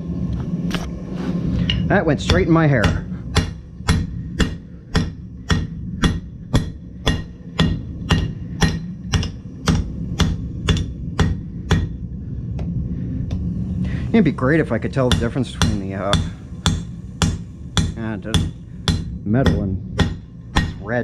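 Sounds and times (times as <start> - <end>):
low hum: 0.0 - 21.0
hammer striking metal on anvil: 1.6 - 12.0, 14.9 - 21.0.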